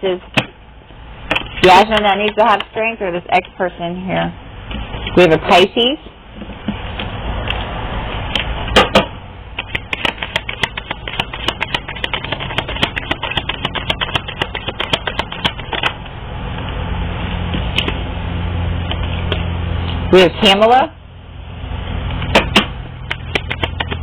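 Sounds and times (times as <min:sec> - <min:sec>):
low steady hum: 0:00.0 - 0:24.0
cards being shuffled: 0:09.6 - 0:16.1, 0:22.3 - 0:24.0.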